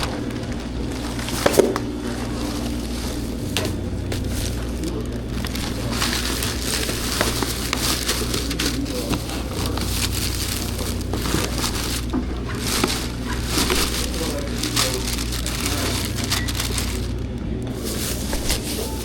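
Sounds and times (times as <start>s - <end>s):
bags crinkling and rustling: 0.0s - 19.0s
steady low hum: 0.0s - 19.0s.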